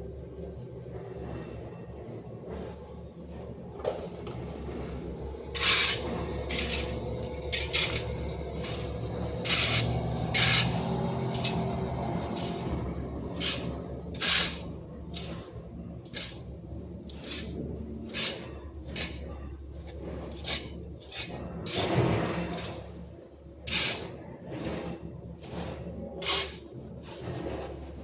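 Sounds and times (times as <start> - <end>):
short scraping strokes: 5.5 - 23.0, 23.7 - 28.0.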